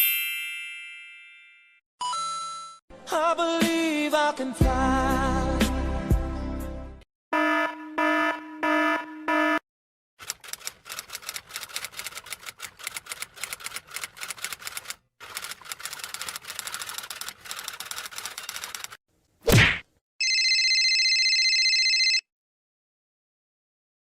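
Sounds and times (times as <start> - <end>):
rapid typing clatter: 10.2 - 19.0.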